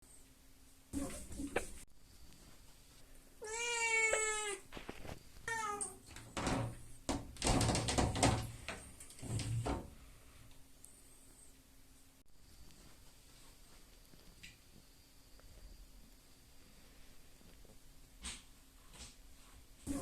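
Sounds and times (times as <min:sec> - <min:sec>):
cat meowing: 0:03.4 - 0:04.7, 0:05.5 - 0:06.0.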